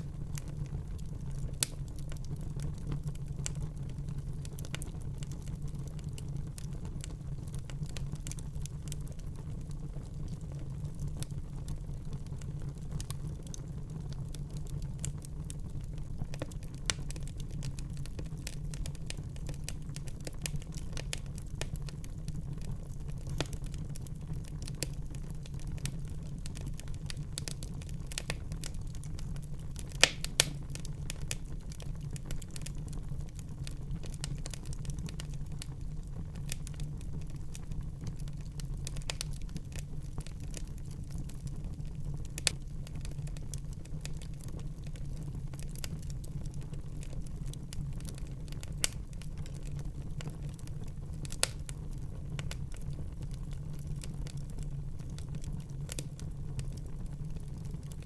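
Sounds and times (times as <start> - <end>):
wood fire crackling: 0.0 - 58.0
sharp pops of burning wood: 29.8 - 31.5, 51.2 - 51.8.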